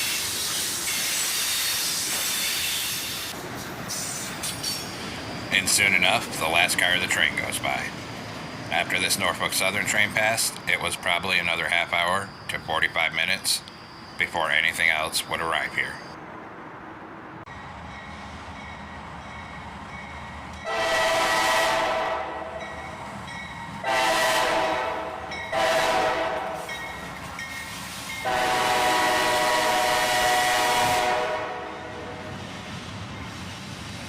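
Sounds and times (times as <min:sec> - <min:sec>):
locomotive air horn blasts: 0:20.6 - 0:22.6, 0:23.8 - 0:26.7, 0:28.2 - 0:32.2.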